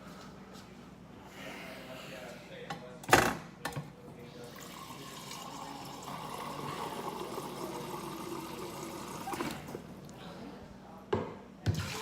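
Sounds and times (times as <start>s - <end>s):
water running: 4.5s - 9.9s.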